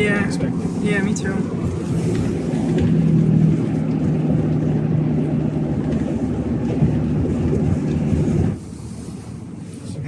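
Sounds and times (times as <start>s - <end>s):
truck engine and road noise: 0.0s - 10.0s.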